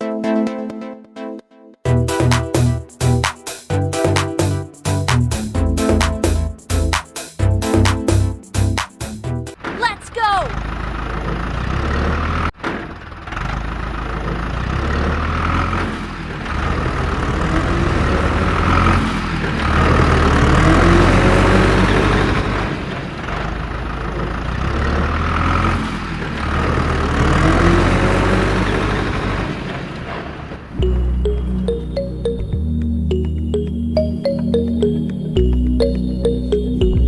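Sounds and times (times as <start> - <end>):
heavy engine rumbling: 8.6 - 37.0.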